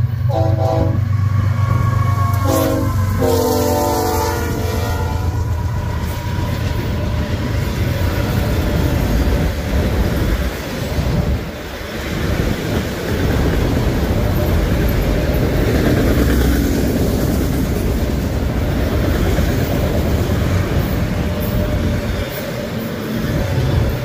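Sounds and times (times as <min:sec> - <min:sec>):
freight cars rumbling on rails: 0:00.0 - 0:24.0.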